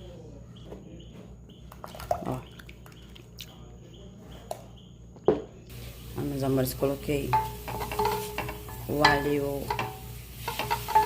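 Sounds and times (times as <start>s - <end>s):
kitchen utensils and pans clinking: 5.9s - 11.0s.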